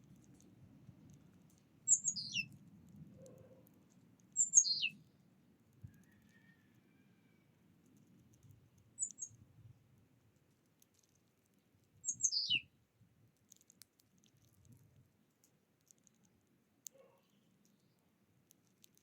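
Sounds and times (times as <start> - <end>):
songbird chirps: 1.1 - 2.6, 3.2 - 9.5, 10.8 - 12.8, 16.8 - 19.0
faint clicks: 13.4 - 19.0.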